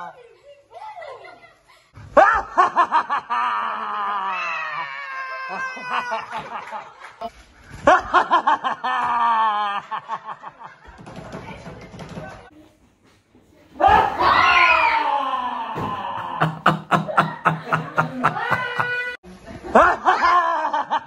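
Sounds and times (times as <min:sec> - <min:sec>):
children shrieking and laughing: 0:00.5 - 0:06.9, 0:13.8 - 0:19.2, 0:19.8 - 0:21.0.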